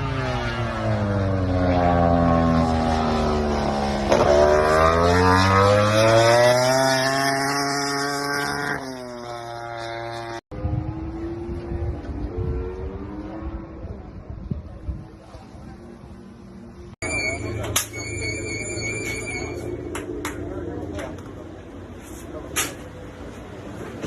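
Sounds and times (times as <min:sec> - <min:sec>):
racing motorcycle engine: 0:00.0 - 0:24.0.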